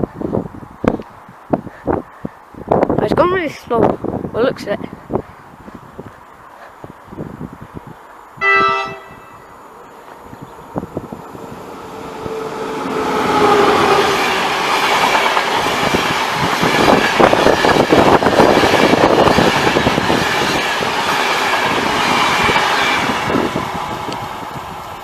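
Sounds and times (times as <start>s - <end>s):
passenger train passing: 8.0s - 25.0s.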